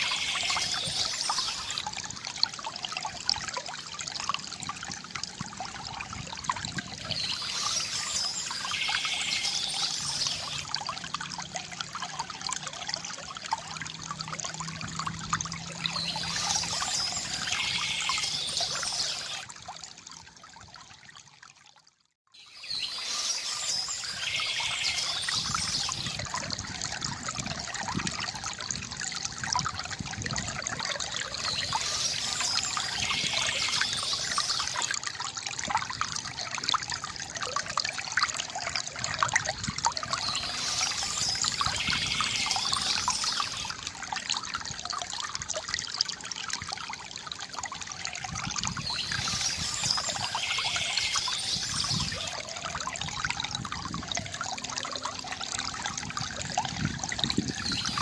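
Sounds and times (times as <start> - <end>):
fountain water trickling: 0.0 - 58.0
birds chirping: 7.0 - 10.6, 15.8 - 19.4, 22.4 - 26.2, 31.3 - 34.9, 40.0 - 43.7, 48.8 - 52.4.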